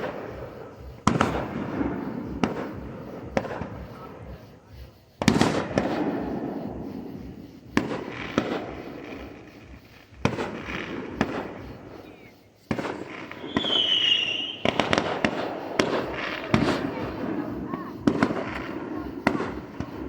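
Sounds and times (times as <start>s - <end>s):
crackling firework pops: 0.0s - 20.0s
fireworks bangs with crackle: 0.0s - 20.0s
firework whistle: 5.2s - 20.0s.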